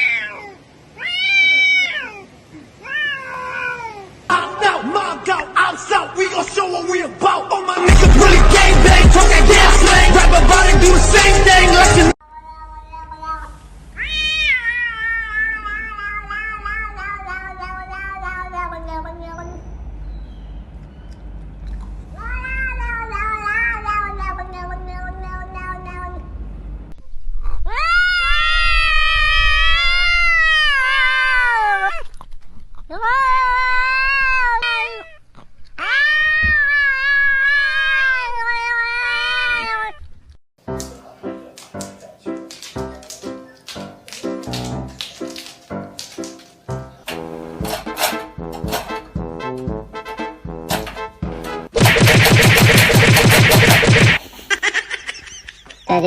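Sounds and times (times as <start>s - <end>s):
cat meowing: 0.0s - 4.2s, 12.4s - 19.4s, 22.2s - 26.3s, 27.4s - 32.1s, 32.9s - 35.2s, 35.8s - 40.0s.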